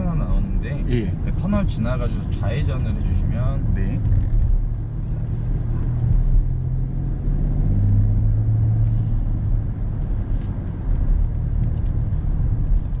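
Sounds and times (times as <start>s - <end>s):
diesel engine drone: 0.0s - 13.0s
road and tyre noise: 0.0s - 13.0s.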